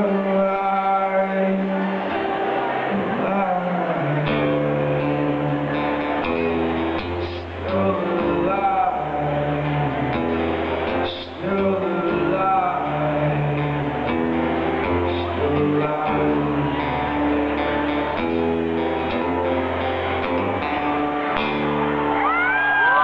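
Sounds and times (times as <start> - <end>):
live acoustic guitar music: 0.0 - 23.0
low bass notes: 2.6 - 23.0
audience whooping: 18.8 - 23.0.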